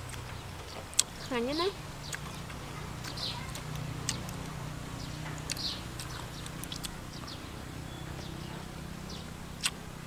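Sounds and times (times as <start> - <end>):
bird chirping: 0.2 - 9.8.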